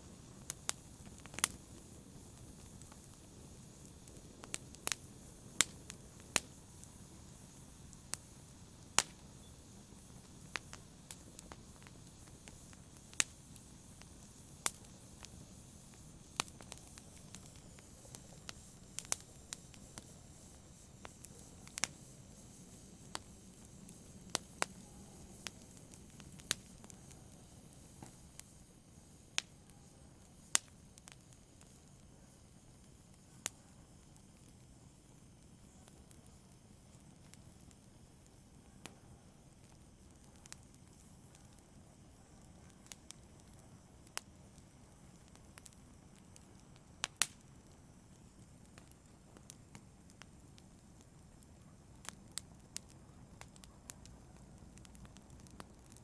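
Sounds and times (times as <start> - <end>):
rush of flame: 0.0 - 32.0
campfire crackling: 0.0 - 56.0.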